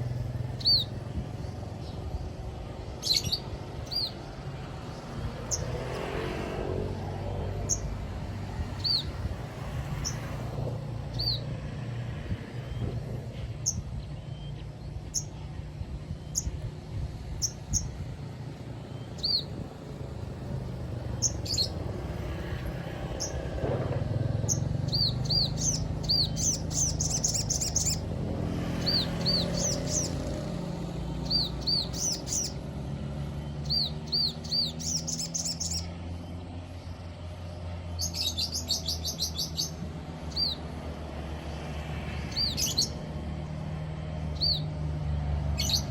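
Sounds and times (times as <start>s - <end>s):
bird rapid trills: 16.2s - 23.6s, 24.4s - 36.0s.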